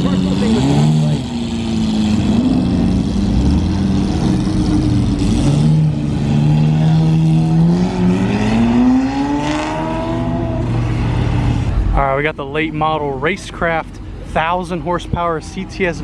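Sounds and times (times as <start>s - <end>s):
car engine revving up: 0.0s - 12.0s
car engines running: 0.0s - 16.0s.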